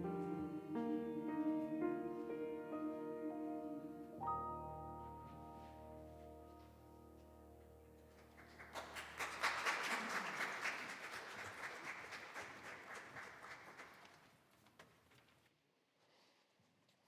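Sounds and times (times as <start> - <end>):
congregation applauding: 8.1 - 14.4.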